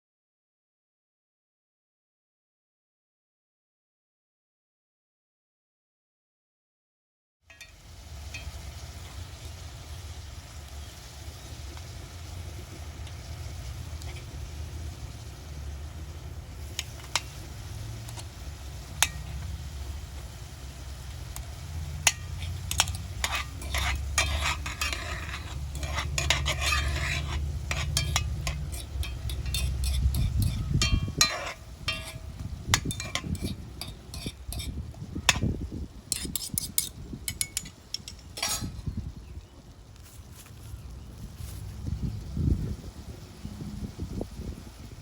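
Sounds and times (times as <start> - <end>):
food sizzling: 7.5 - 45.0
low rumble: 7.9 - 36.0, 40.8 - 45.0
metal utensil scraping pan: 11.6 - 15.4, 16.2 - 19.8, 21.2 - 39.0.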